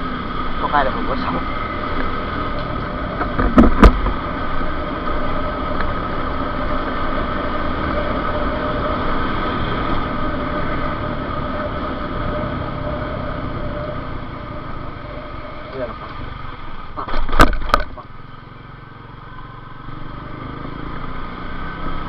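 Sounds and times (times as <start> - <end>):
motorcycle engine running: 0.0 - 22.0
wind noise on microphone: 2.6 - 4.9
sharp knocks: 3.2 - 4.2.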